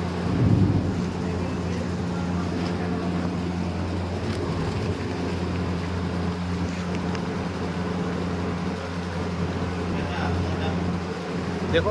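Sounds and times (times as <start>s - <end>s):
pulverizer machine drone: 0.0s - 5.0s.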